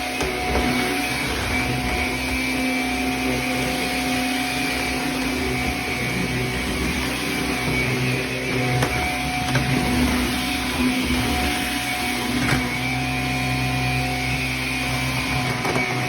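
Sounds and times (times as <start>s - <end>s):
vacuum motor humming and whining: 0.0s - 16.0s.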